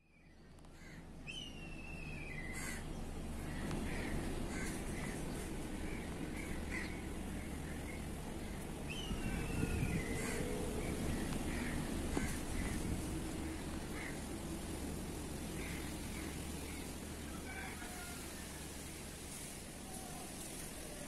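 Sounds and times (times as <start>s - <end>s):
falling whistled bird call: 1.3s - 2.4s.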